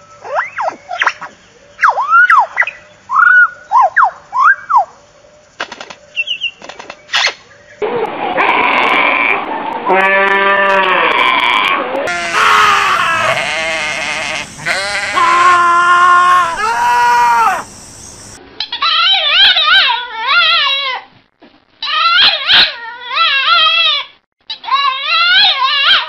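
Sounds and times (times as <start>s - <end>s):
sheep bleating: 9.9s - 17.7s
dog howling: 12.1s - 18.4s.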